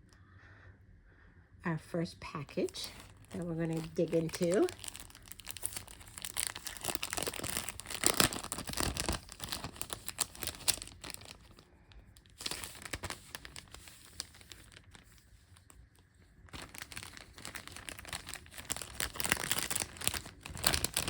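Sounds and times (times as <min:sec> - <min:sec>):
packaging crinkling and tearing: 0:02.4 - 0:21.0.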